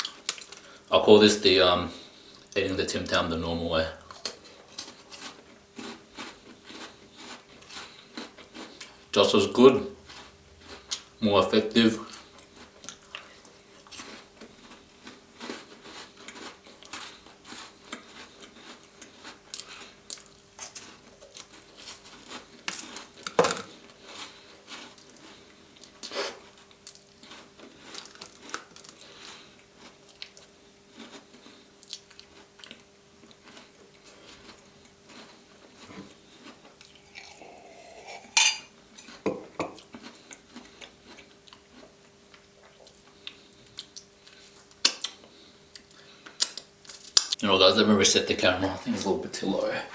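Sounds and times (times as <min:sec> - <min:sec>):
chewing and crunching biscuits: 0:00.0 - 0:49.8.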